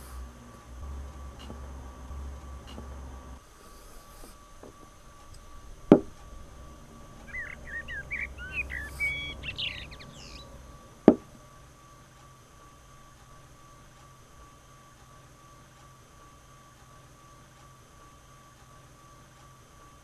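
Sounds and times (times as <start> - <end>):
songbird chirping: 0.0 - 3.4, 4.5 - 12.1
faint steady hum: 0.0 - 20.0
sharp knocks: 5.8 - 6.2.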